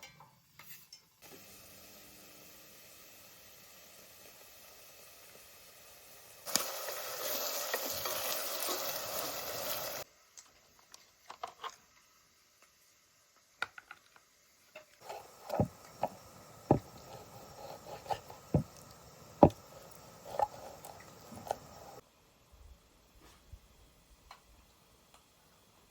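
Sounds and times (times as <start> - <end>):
food sizzling in hot oil: 1.2 - 10.1, 14.4 - 22.0.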